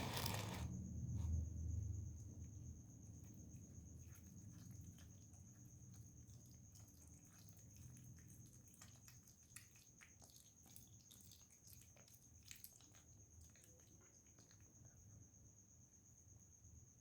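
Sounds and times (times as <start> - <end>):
cat chewing food: 3.2 - 15.1.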